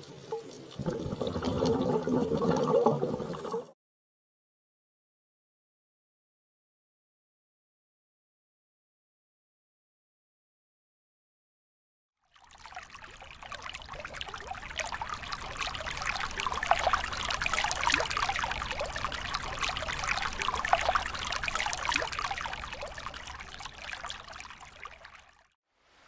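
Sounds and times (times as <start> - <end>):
water washing over pebbles: 12.4 - 25.4.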